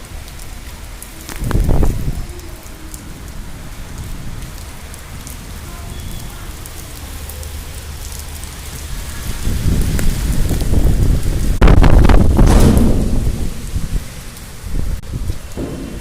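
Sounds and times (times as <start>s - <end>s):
steady rain falling: 0.0s - 16.0s
low rumble: 10.4s - 16.0s.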